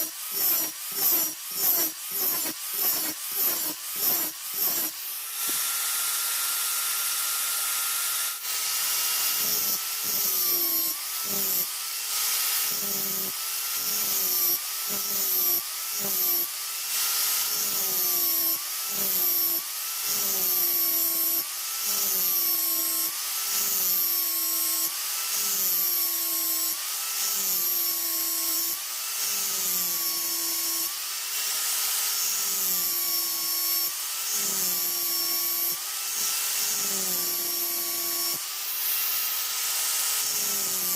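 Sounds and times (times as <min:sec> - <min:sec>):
rasping scraping noise: 0:00.0 - 0:05.0
power tool motor whining: 0:00.0 - 0:40.9.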